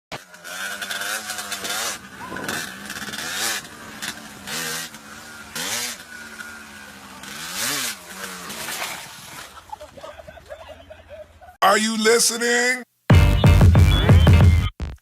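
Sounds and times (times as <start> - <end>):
motorcycle engine revving: 0.1 - 9.5.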